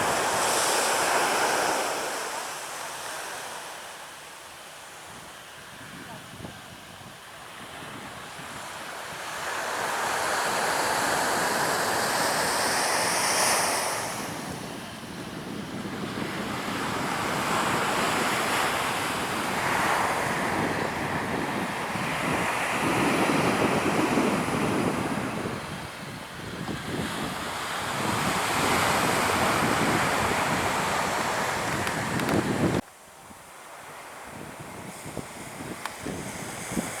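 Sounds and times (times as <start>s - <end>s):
surf breaking on beach: 0.0s - 4.1s, 7.5s - 32.8s
wind buffeting microphone: 14.0s - 32.8s, 34.3s - 37.0s.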